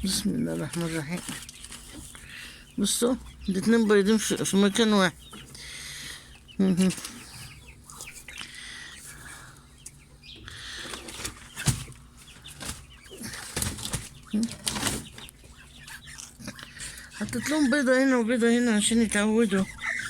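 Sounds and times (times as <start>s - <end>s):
chickens clucking: 0.0s - 20.0s
chicken wings flapping: 12.6s - 15.2s.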